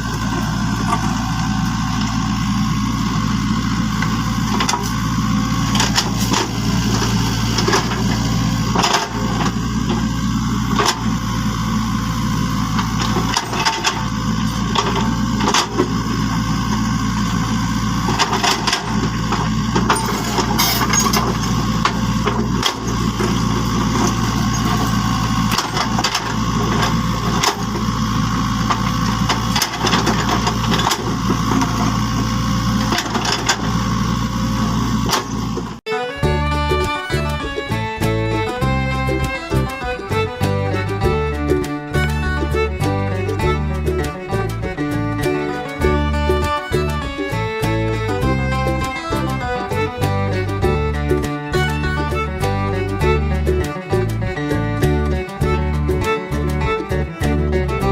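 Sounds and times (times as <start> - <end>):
small motor humming: 0.0 - 53.8
irregular clicks and knocks: 3.9 - 11.6, 12.7 - 16.9, 17.8 - 34.0.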